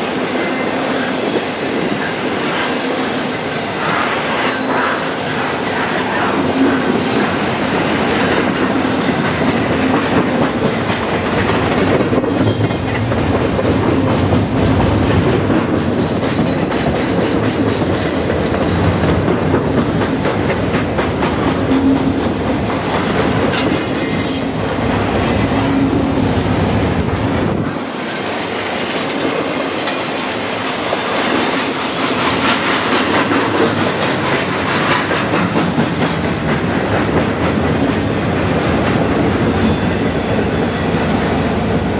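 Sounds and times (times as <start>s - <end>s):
wheels squealing on rail: 0.0s - 11.2s, 21.5s - 26.8s, 31.0s - 32.9s, 39.1s - 41.6s
train wheels rumbling on rail: 0.0s - 41.9s.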